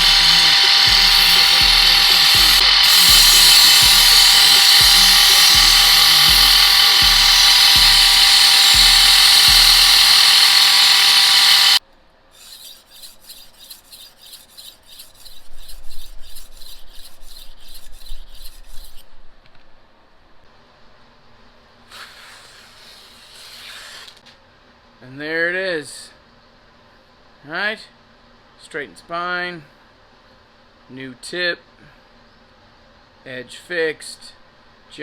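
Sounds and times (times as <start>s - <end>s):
power grinder on steel: 0.0s - 11.8s, 12.4s - 19.0s
song with steady beat: 0.0s - 11.8s
scraping strokes on blade: 0.0s - 19.2s, 21.9s - 24.3s.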